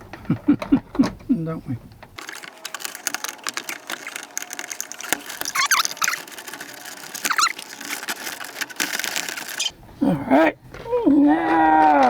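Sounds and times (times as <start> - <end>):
hand tools clicking and scraping: 0.0 - 12.0
short wavering squeaks: 5.0 - 8.0, 9.5 - 9.7.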